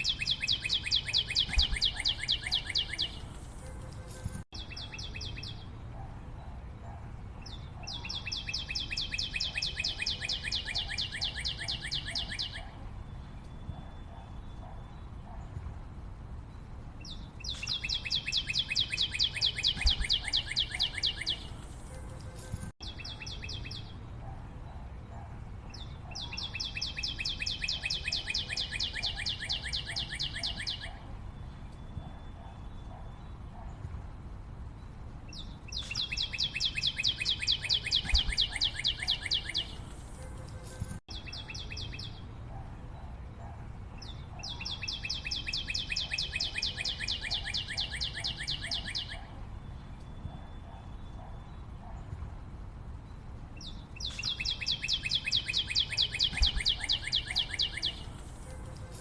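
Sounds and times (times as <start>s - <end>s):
bird calling in fast trills: 35.8s - 39.8s, 54.0s - 58.1s.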